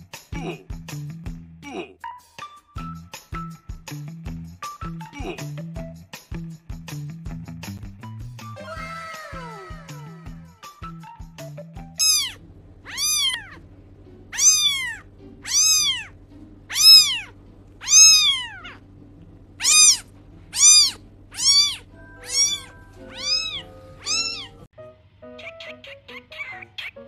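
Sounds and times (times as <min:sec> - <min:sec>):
kitten meowing: 0:12.0 - 0:13.6, 0:14.3 - 0:18.8, 0:19.6 - 0:24.7.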